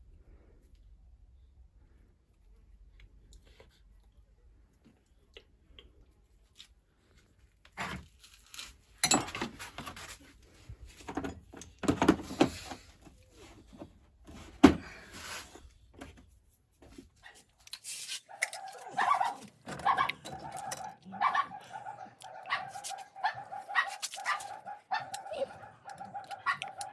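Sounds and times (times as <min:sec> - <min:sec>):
metal tools knocking and clinking: 0:09.0 - 0:09.5.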